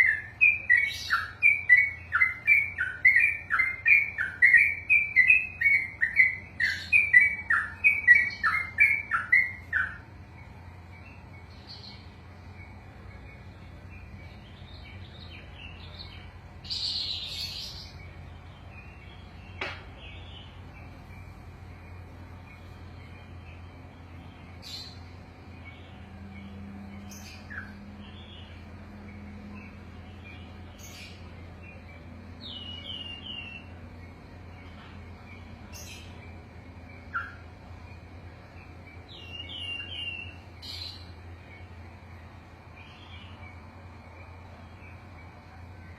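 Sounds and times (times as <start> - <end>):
bird singing falling notes: 0.0 - 28.6
faint bird chirps: 0.0 - 45.9.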